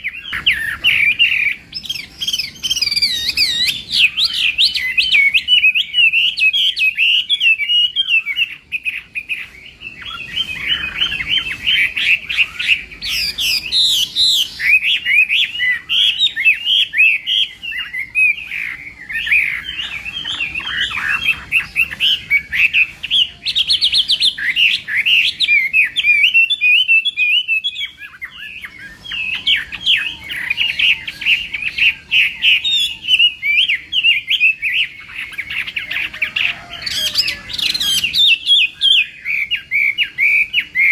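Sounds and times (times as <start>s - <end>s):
laughingthrush singing whistled phrases: 0.0s - 40.9s.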